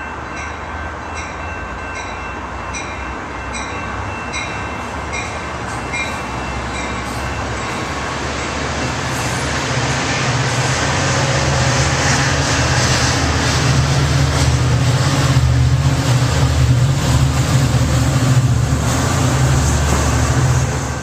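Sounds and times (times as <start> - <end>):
diesel locomotive drone: 0.0 - 21.0
rumble of passing train: 0.0 - 21.0.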